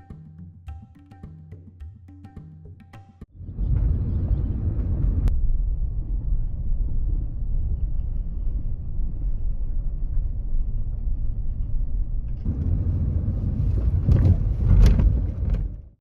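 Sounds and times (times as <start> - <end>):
vehicle driving on road: 3.4 - 15.9.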